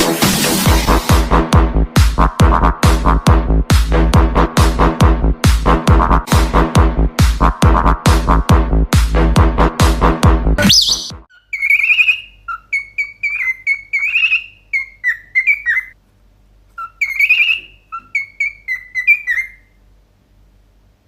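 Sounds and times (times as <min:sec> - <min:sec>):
cockatiel whistling: 0:10.6 - 0:16.0, 0:16.8 - 0:19.8.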